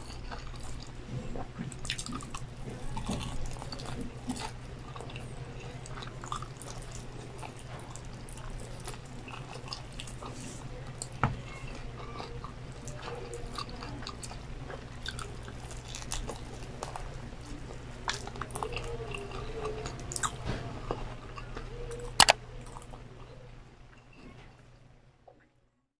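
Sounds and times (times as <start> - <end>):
crunchy chewing: 0.0 - 24.6
steady low hum: 0.0 - 25.7.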